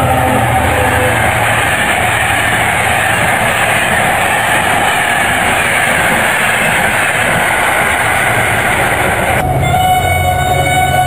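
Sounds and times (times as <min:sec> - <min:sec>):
train rushing past: 0:00.0 - 0:11.0.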